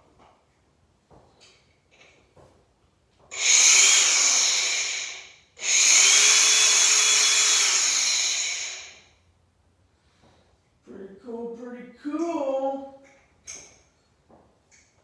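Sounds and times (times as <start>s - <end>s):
angle grinder whining: 3.3s - 9.1s.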